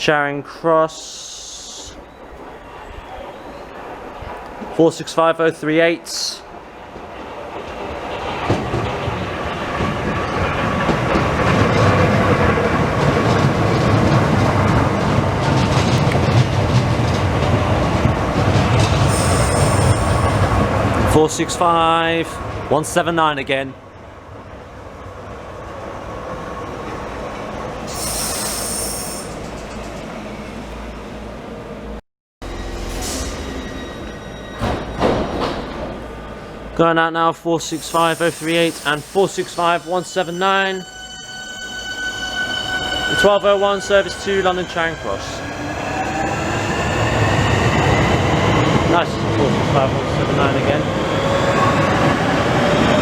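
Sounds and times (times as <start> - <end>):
electric train arriving: 0.7 - 22.7, 25.2 - 36.9, 37.6 - 53.0
wheel or brake squeal: 19.0 - 20.6, 27.9 - 29.8, 32.5 - 35.4, 37.7 - 46.0
train wheels clacking on rail joints: 34.6 - 36.0.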